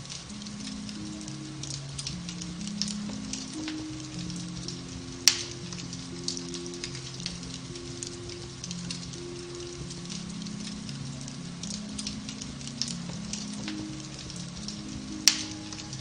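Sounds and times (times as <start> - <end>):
fire crackling in fireplace: 0.0 - 16.0
soft relaxation piano music: 0.0 - 16.0.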